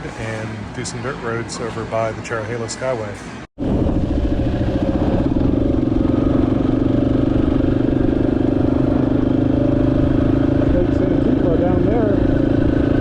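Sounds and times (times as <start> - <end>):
motorcycle engine running: 3.6 - 13.0.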